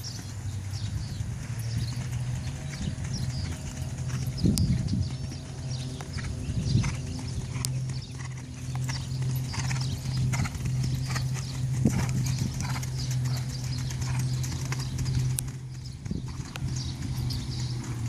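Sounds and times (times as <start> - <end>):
horse hooves clip-clopping: 0.0 - 18.0
steady low hum: 0.0 - 18.0.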